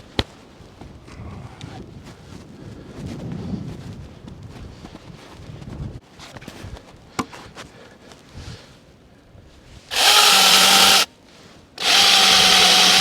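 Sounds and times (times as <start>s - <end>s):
power tool motor whine on wood: 9.9s - 11.1s, 11.8s - 13.0s.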